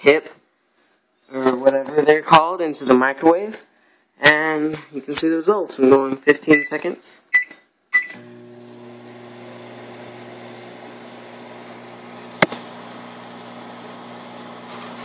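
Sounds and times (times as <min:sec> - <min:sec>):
microwave oven humming: 0:08.0 - 0:15.0.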